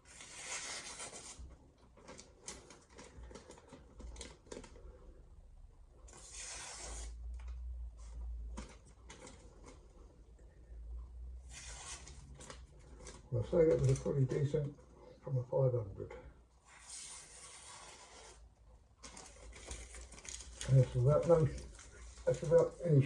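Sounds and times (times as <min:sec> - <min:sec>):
knife slicing through paper: 0:06.1 - 0:07.2, 0:11.5 - 0:12.2, 0:16.7 - 0:18.4.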